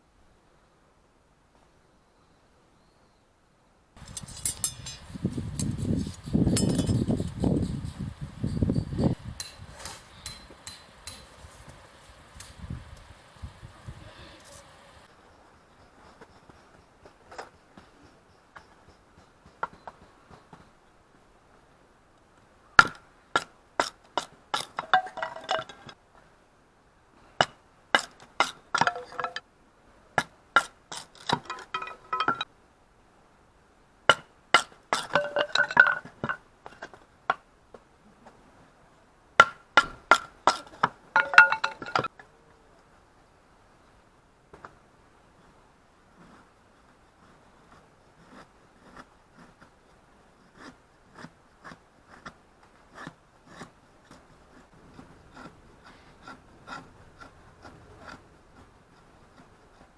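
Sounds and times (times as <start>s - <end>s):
metal clinking when struck: 4.0s - 15.0s, 31.3s - 32.4s.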